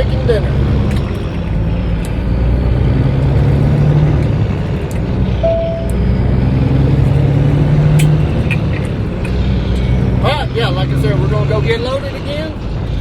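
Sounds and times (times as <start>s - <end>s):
truck diesel engine running: 0.0s - 13.0s
short high chirp: 5.4s - 6.0s.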